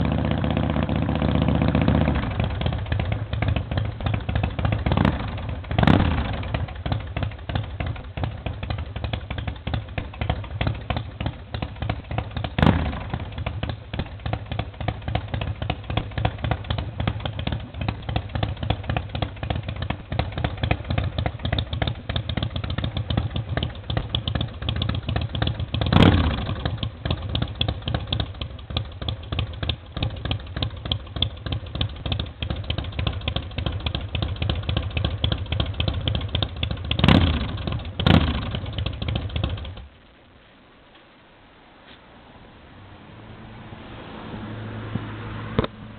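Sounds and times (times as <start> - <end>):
motorcycle engine idling: 0.0 - 40.0
motorcycle throttle blips: 44.9 - 45.9.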